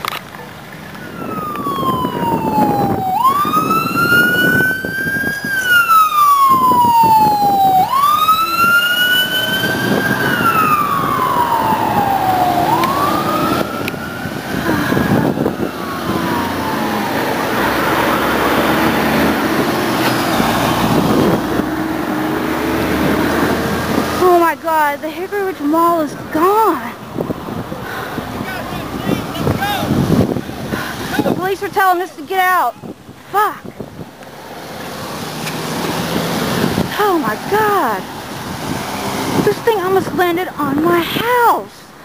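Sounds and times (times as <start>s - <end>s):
road and engine noise: 0.0s - 42.0s
emergency siren wailing: 0.8s - 24.5s.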